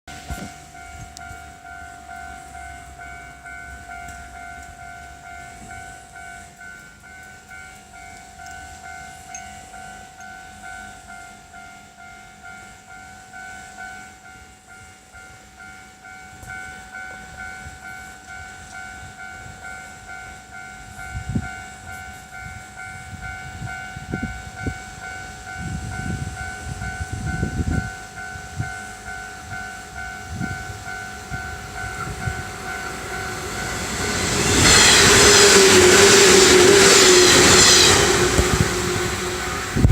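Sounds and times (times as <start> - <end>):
train wheel and rail noise: 0.1 - 39.9
level crossing bell ringing: 14.8 - 34.6
train motor hum: 25.6 - 39.9.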